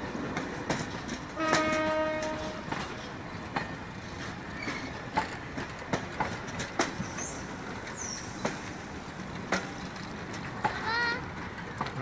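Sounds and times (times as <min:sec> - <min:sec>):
train rumble: 0:00.0 - 0:12.0
wheels knocking over rail joints: 0:00.3 - 0:07.1.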